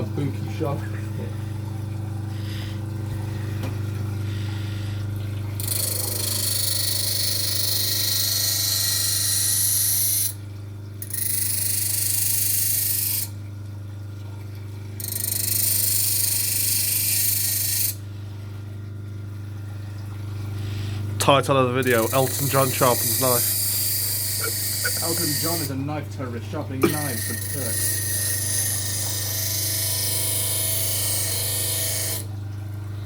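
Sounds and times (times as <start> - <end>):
electric grinder humming: 5.6 - 10.4, 15.0 - 18.0, 21.8 - 25.8, 26.8 - 32.3
knife blade grinding hiss: 23.1 - 25.7, 26.8 - 32.2.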